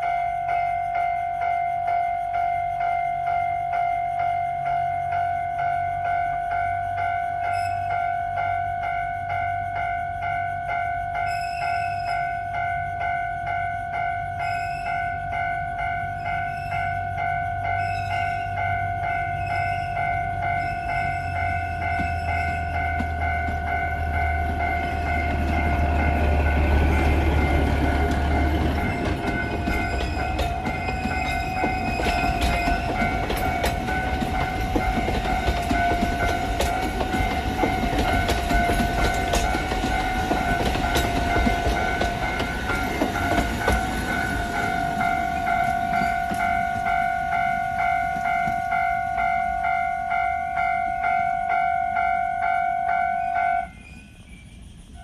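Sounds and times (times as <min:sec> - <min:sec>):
steady high-pitched tone: 0:00.0 - 0:55.0
train wheels clattering on rail joints: 0:14.9 - 0:52.6.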